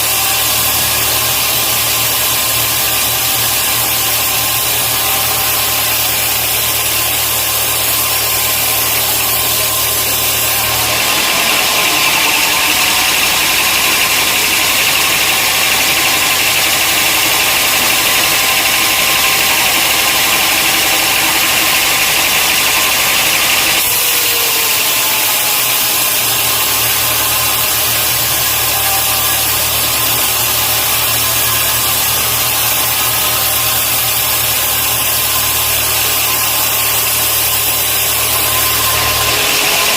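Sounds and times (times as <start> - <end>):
machinery engine-like hum: 0.0 - 39.9.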